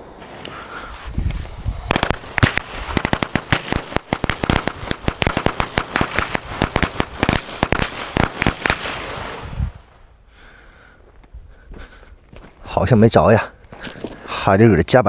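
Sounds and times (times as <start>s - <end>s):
firecrackers going off: 1.4s - 9.9s.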